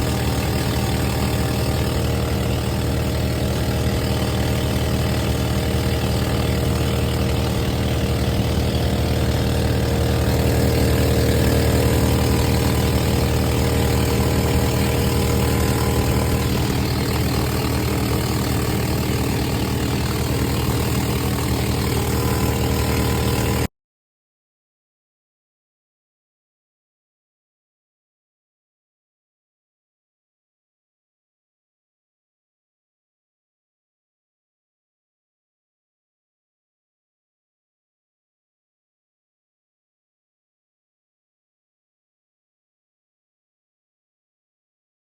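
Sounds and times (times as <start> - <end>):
engine running steadily: 0.0 - 23.7.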